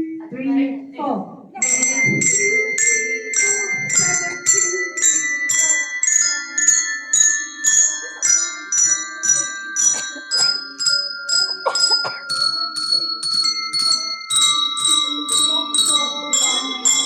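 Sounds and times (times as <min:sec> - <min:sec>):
handbells ringing descending scale: 0:01.6 - 0:17.0.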